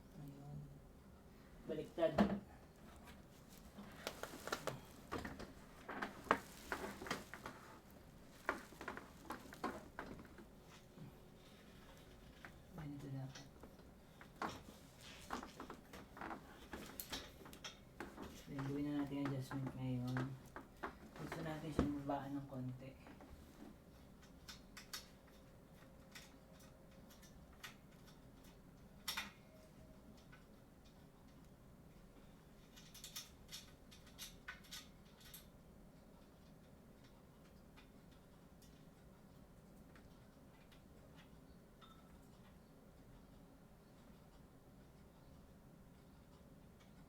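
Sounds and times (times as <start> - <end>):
scraping rustles: 2.8 - 10.9.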